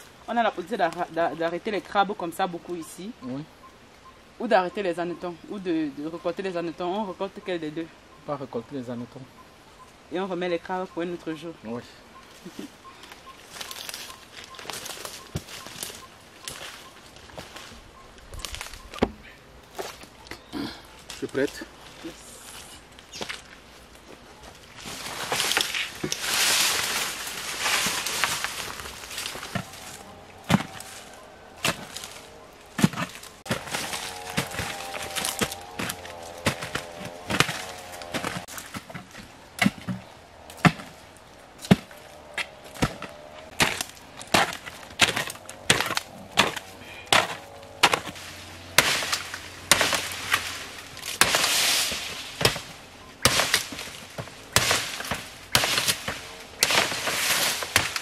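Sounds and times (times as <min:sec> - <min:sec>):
rustling: 0:12.2 - 0:58.0
sharp knocks and cracks: 0:25.2 - 0:31.0, 0:31.6 - 0:41.0, 0:41.6 - 0:48.2, 0:48.8 - 0:58.0.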